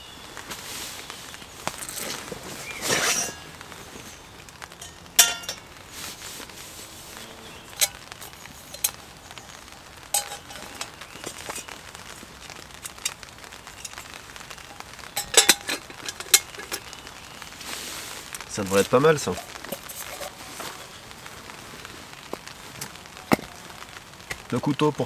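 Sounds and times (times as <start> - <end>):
hard objects knocking and clinking: 4.7 - 5.6, 10.1 - 11.7, 15.2 - 16.9.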